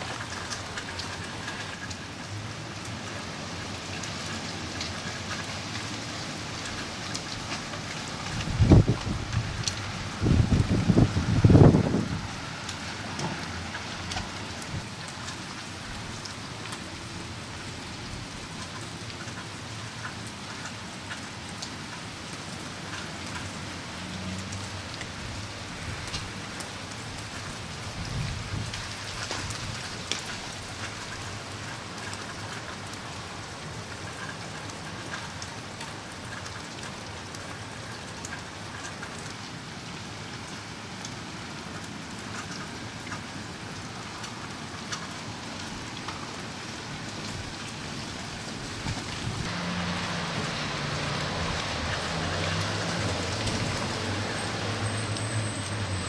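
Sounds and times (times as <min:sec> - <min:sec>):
freezing rain hissing: 0:00.0 - 0:56.0.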